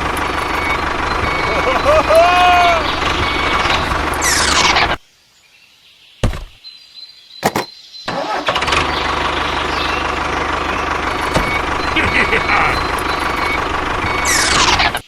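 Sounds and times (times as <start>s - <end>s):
engine running with low rumble: 0.0s - 5.0s, 8.1s - 15.0s
starter clicks: 7.4s - 7.7s.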